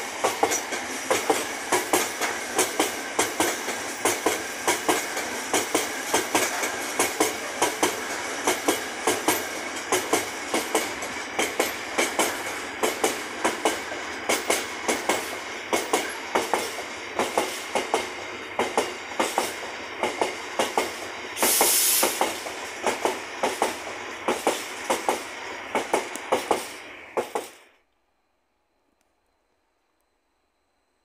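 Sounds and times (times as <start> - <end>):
wheels clacking over rail joints: 0.0 - 27.6
short burst of hiss: 21.4 - 22.9, 24.3 - 27.8.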